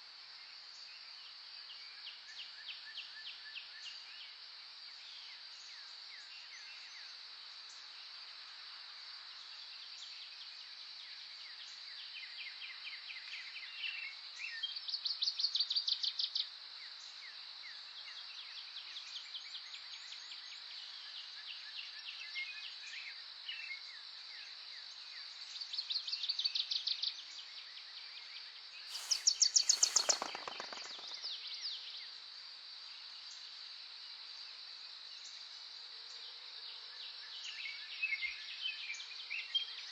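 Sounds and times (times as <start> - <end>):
bird trilling: 28.9 - 31.2
high-pitched insect drone: 28.9 - 31.2
faint bird chirps: 28.9 - 31.4.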